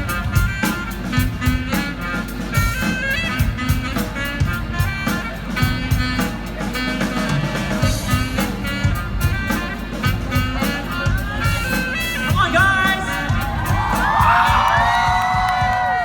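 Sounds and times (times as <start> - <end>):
drum beat: 0.0 - 16.0
live pop band playing: 0.0 - 16.0.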